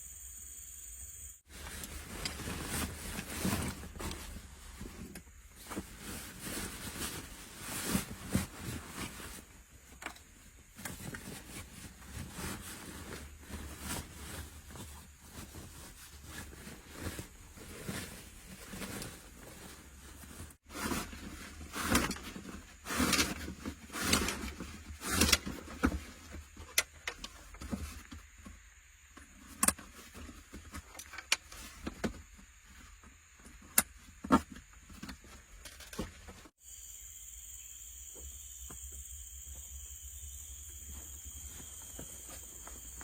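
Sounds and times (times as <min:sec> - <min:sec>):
rustling and knocks: 0:01.5 - 0:36.6
high-pitched insect chirring: 0:36.6 - 0:41.9.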